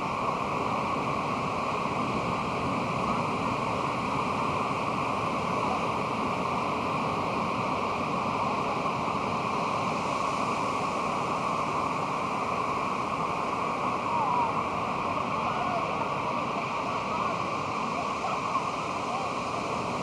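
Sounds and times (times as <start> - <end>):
ocean surf washing: 0.0 - 20.0.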